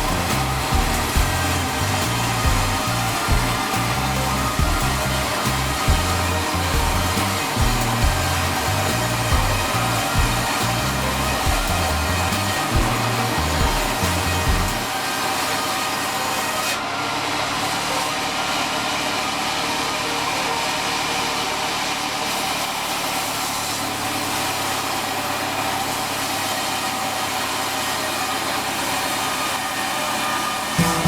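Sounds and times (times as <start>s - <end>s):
machinery hiss: 0.0s - 16.7s
sawmill engine drone: 0.0s - 31.0s.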